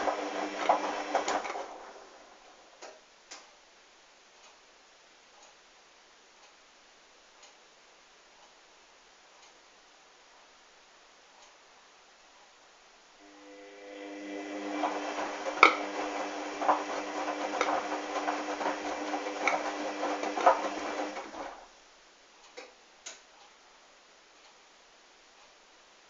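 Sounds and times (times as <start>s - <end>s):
washing machine motor humming: 0.0s - 2.8s, 13.2s - 21.7s.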